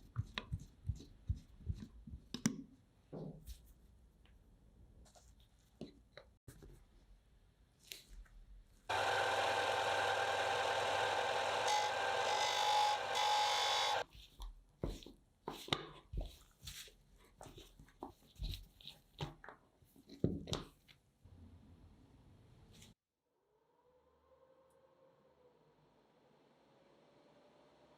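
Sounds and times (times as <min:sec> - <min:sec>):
small motor tool running: 0:08.9 - 0:14.0.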